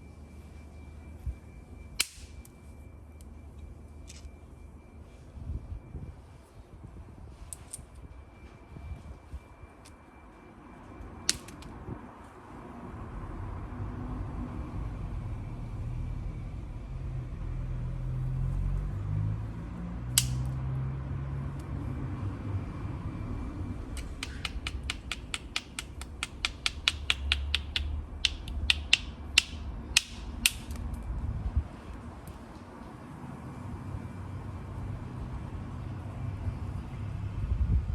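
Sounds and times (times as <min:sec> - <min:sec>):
hammer striking flint: 0:24.0 - 0:30.8
light quick tapping on flint: 0:24.0 - 0:30.8.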